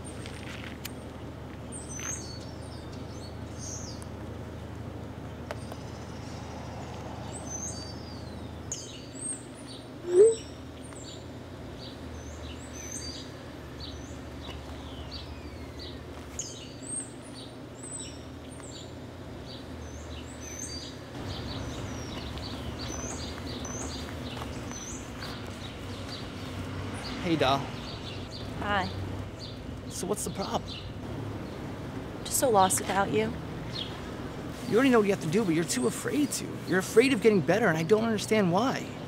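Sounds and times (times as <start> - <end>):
songbirds chirping: 0.0 - 39.0
loud rising tone: 10.0 - 10.5.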